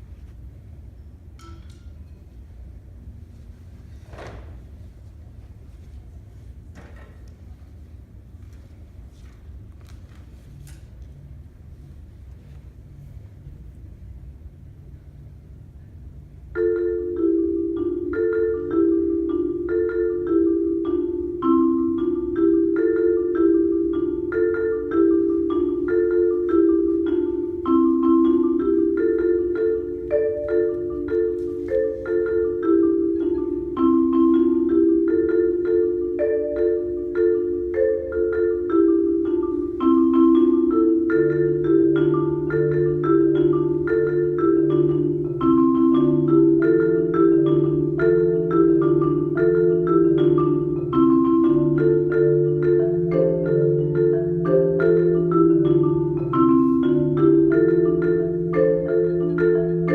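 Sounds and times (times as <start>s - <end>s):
marimba playing: 0.0s - 3.9s, 16.1s - 59.9s.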